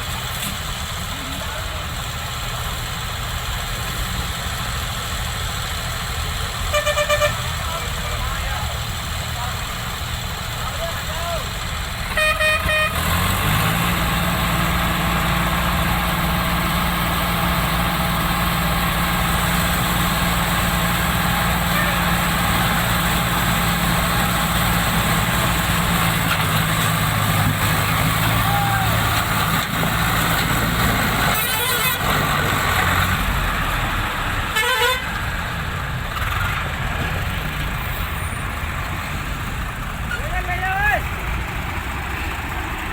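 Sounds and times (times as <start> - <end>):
heavy diesel engine running: 0.0 - 42.9
wavering horn blast: 6.7 - 7.4, 12.1 - 13.0, 34.6 - 35.1.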